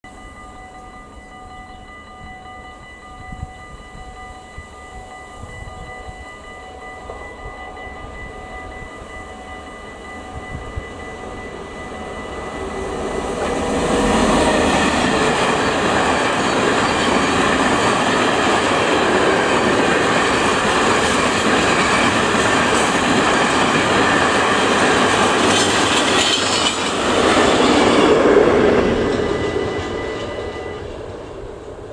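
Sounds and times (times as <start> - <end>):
electric locomotive whine: 0.0 - 31.9
train wheels and wagons passing: 0.1 - 31.9.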